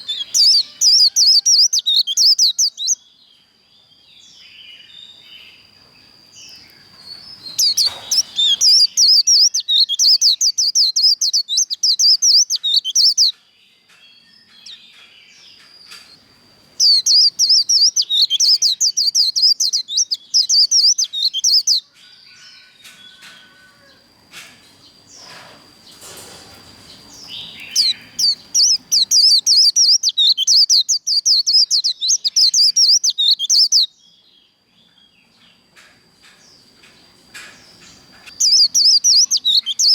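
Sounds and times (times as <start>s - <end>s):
bird singing rapid high notes: 0.0s - 3.0s, 7.4s - 13.3s, 16.8s - 21.8s, 27.3s - 33.9s, 38.2s - 39.9s.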